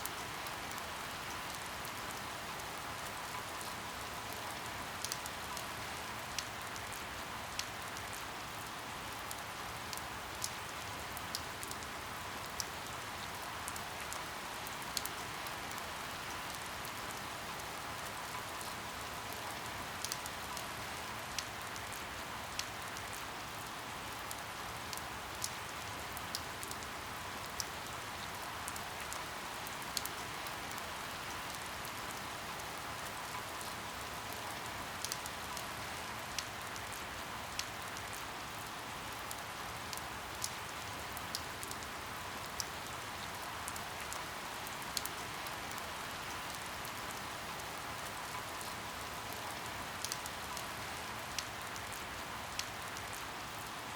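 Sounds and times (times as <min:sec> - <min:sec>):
raindrops ticking on surface: 0:00.0 - 0:53.9
steady rain: 0:00.0 - 0:53.9.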